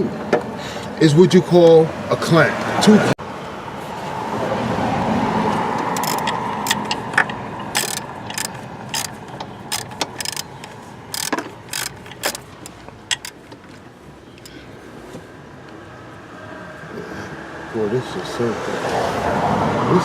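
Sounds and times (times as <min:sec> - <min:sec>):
rushing background noise: 0:02.0 - 0:20.0
metallic clicks of hand tools: 0:05.7 - 0:13.8.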